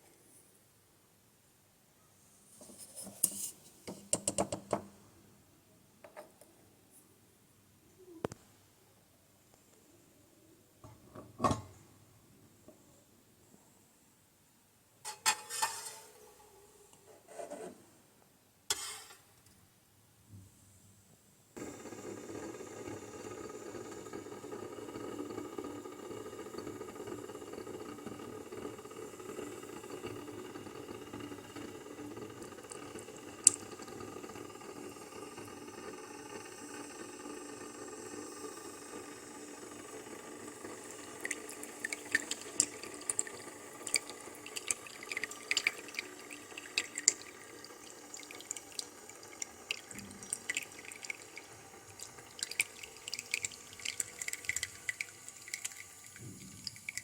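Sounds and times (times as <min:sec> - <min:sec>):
coffee spitting and dripping: 0:21.6 - 0:57.0
espresso maker humming and hissing: 0:21.6 - 0:57.0.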